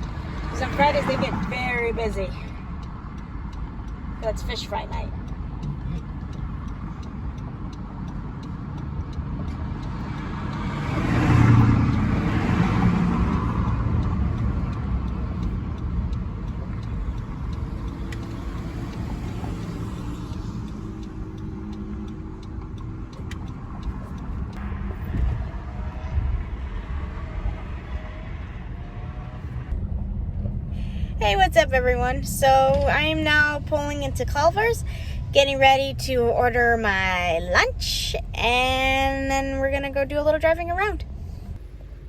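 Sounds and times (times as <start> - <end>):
car engine running: 0.0 - 42.0
road rumble: 0.0 - 42.0.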